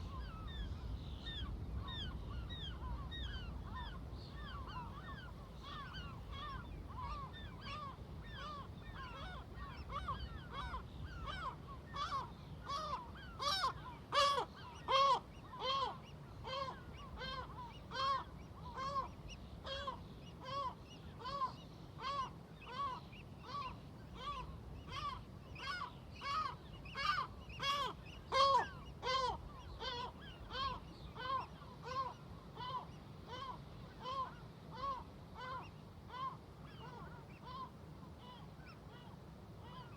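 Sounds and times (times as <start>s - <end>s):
low steady rumble: 0.0s - 14.0s
seagulls calling: 0.0s - 39.9s.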